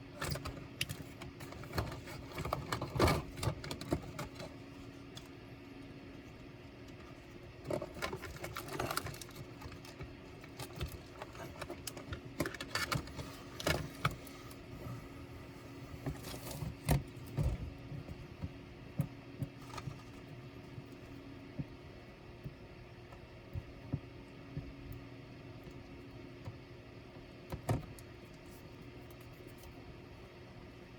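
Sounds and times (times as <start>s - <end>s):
steady low hum: 0.0s - 30.9s
clicks and rattles of small parts: 7.6s - 14.2s.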